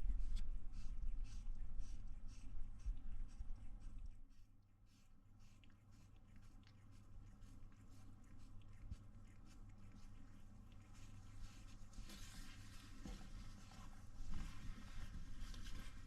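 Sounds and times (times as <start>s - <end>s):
faint rustling and scratching: 0.0s - 16.0s.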